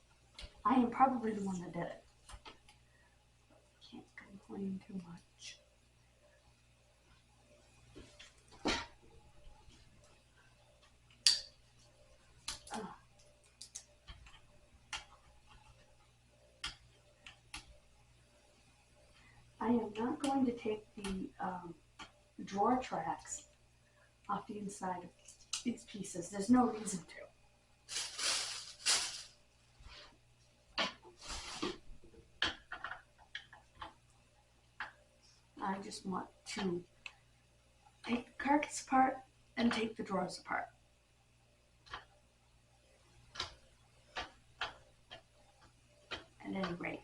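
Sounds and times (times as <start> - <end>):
light clicks and taps: 12.4 - 15.9.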